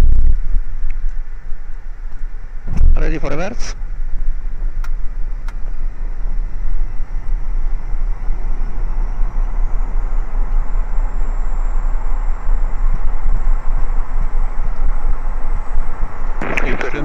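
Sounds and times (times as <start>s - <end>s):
faint whine: 0.0s - 17.0s
jet engines rumbling: 0.0s - 17.0s.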